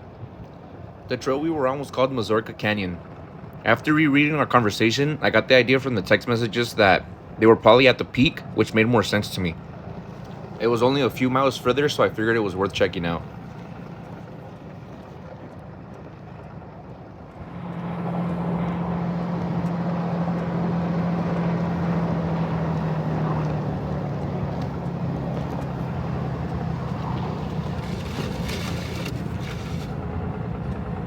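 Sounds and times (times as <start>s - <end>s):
diesel engine running under load: 8.1s - 14.7s, 17.3s - 31.0s.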